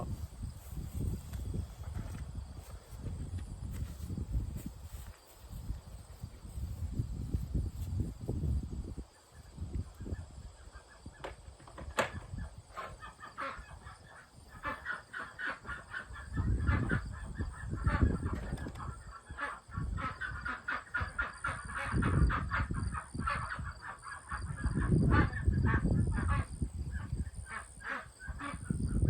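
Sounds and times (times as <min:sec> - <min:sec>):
ducks quacking: 0:12.8 - 0:28.8.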